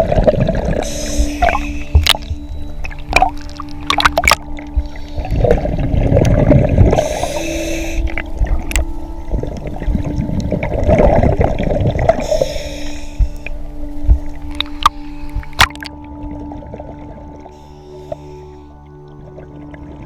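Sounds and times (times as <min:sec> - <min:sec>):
exhaled bubbles gurgling: 0:00.0 - 0:17.6
steady low hum: 0:00.0 - 0:19.4
regulator inhalation hiss: 0:00.8 - 0:02.0, 0:06.9 - 0:08.2, 0:12.2 - 0:13.6.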